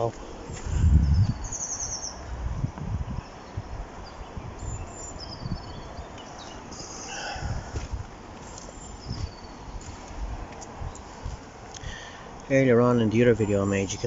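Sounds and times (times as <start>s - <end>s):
small birds chirping trills: 0.0s - 14.0s
wind noise on microphone: 0.4s - 6.2s, 7.4s - 8.2s, 8.8s - 12.0s.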